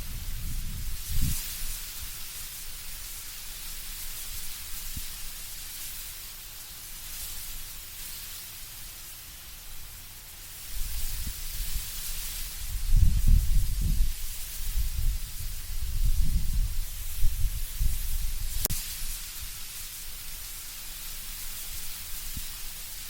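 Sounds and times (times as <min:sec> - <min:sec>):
low rumbling wind gusts: 0:00.0 - 0:01.5, 0:12.6 - 0:18.7
leaves rustling in wind: 0:00.0 - 0:23.0.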